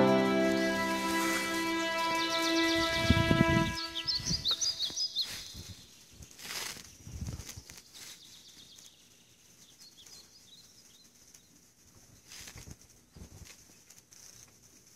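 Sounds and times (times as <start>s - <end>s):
bird chirps: 0.0s - 6.1s
outdoor yard ambience: 3.7s - 14.9s.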